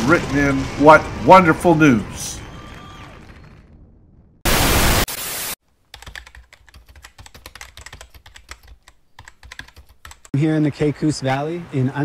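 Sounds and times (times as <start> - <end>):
loud burst of static noise: 4.4 - 5.6
typing on computer keyboard: 5.9 - 10.3.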